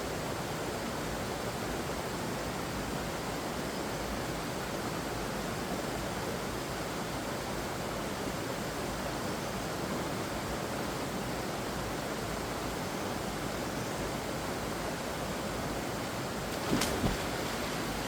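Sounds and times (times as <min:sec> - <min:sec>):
water rushing: 0:15.6 - 0:18.0.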